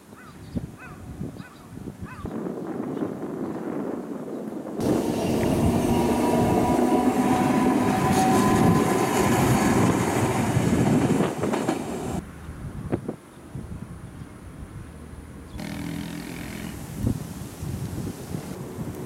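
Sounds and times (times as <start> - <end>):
tram rolling on rails: 4.8 - 12.2, 18.6 - 19.0.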